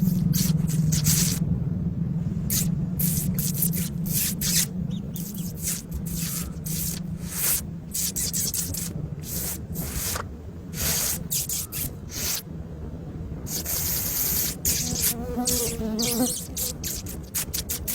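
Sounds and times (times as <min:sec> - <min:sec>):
scratchy rustles and scrapes: 0:00.0 - 0:01.4, 0:14.6 - 0:17.9
steady low hum: 0:00.0 - 0:17.9.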